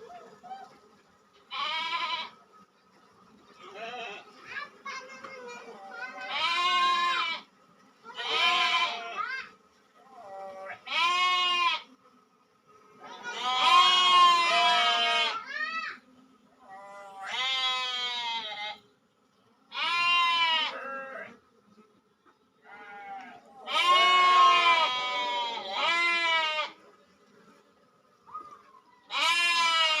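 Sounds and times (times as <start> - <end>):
animal bleating: 1.5 - 2.4, 3.6 - 4.3, 5.9 - 7.5, 8.1 - 9.3, 10.2 - 11.9, 13.0 - 15.5, 16.6 - 18.8, 19.7 - 21.4, 22.6 - 26.8, 29.1 - 30.0.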